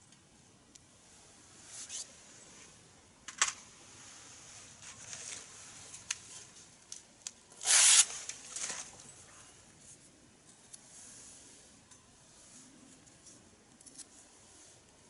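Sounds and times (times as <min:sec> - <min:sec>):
rustling noise: 0:03.8 - 0:06.8, 0:07.6 - 0:10.1.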